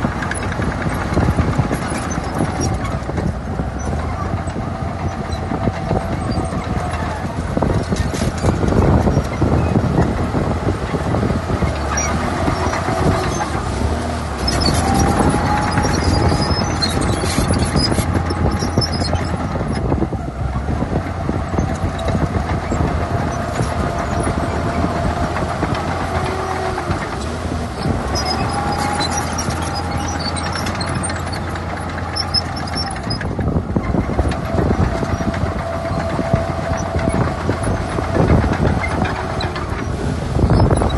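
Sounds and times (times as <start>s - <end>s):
clatter of steel tracks: 0.0s - 19.9s, 21.5s - 40.9s
bulldozer diesel engine under load: 0.0s - 40.9s
squeal: 14.4s - 19.8s, 28.2s - 31.5s, 32.2s - 33.2s.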